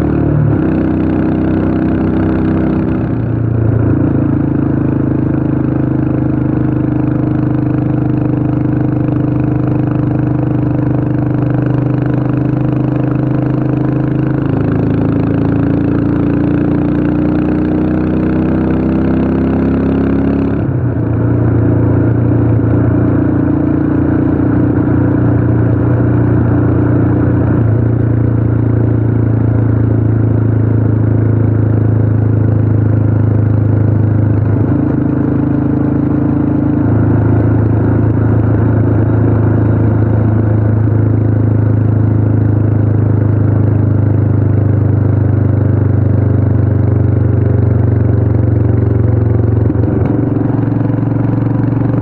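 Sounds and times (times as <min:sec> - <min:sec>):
motorcycle engine cruising: 0:00.0 - 0:52.0.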